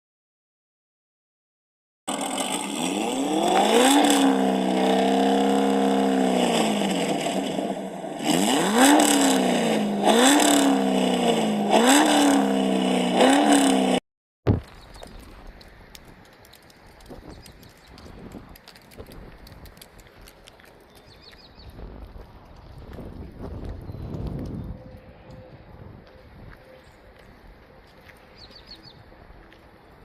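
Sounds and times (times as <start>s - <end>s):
car engine revving: 2.1s - 14.0s.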